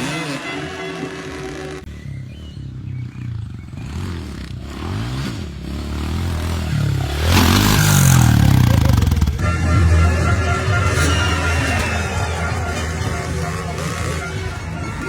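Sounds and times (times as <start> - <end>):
dirt bike engine revving: 0.0 - 15.0
rough scraping rush: 6.4 - 15.0.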